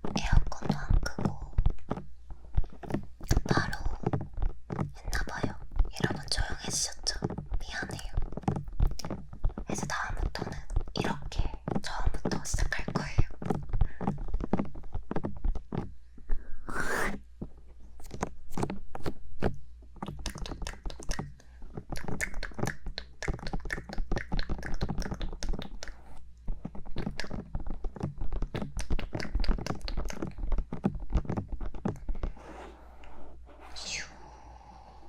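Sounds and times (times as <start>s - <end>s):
fingertips tapping on microphone: 0.0s - 16.0s, 16.7s - 34.1s
fingertips rubbing microphone: 16.6s - 17.2s, 23.4s - 34.3s
rushing brush over microphone: 16.7s - 17.2s, 32.2s - 34.3s.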